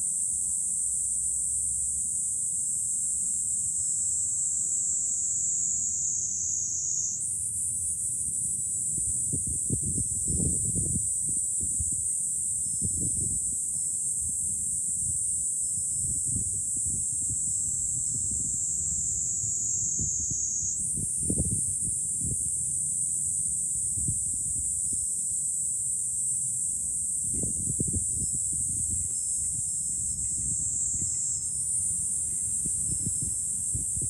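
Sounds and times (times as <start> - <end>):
cicadas shrilling: 0.0 - 34.0
wind buffeting microphone: 8.8 - 22.8, 23.6 - 25.1, 27.1 - 34.0.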